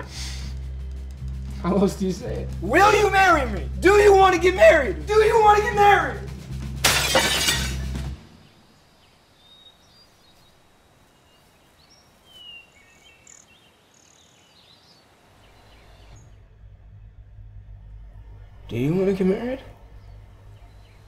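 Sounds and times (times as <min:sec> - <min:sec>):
faint bird chirps: 0:08.4 - 0:17.7.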